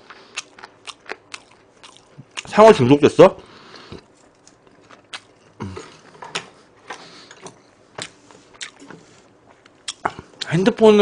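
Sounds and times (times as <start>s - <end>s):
chewing noodles: 0.0s - 2.5s, 3.7s - 6.1s.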